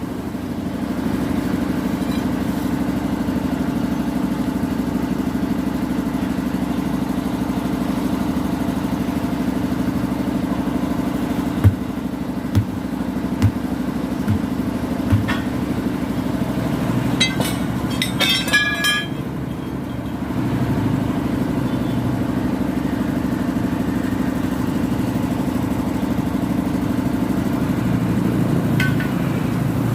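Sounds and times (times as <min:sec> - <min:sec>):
engine idling: 0:00.0 - 0:29.9
dull knocks: 0:11.6 - 0:11.9, 0:12.6 - 0:12.8, 0:13.4 - 0:13.6, 0:14.3 - 0:14.5, 0:15.1 - 0:15.6
metal clanks: 0:15.1 - 0:15.6, 0:17.2 - 0:19.2.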